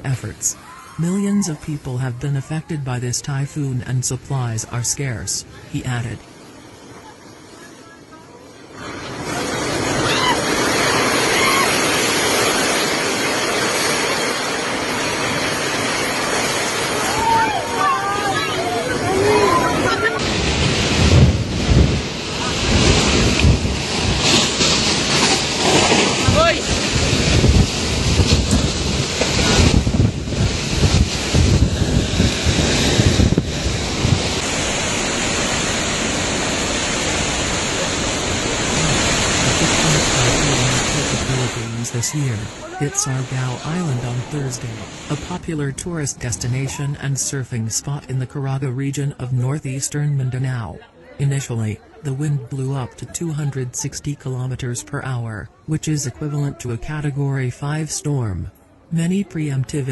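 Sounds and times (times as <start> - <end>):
wind and rain rushing: 8.4 - 48.0.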